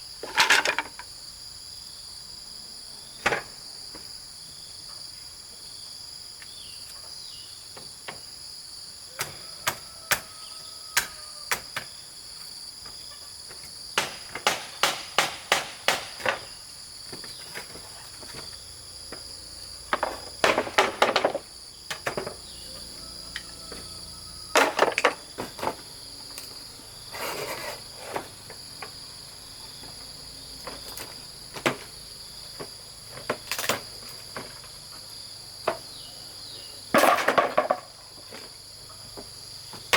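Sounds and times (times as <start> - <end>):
high-pitched insect chorus: 0.0 - 39.9
tool strikes on wood: 9.2 - 10.3, 11.0 - 11.9, 14.0 - 16.5.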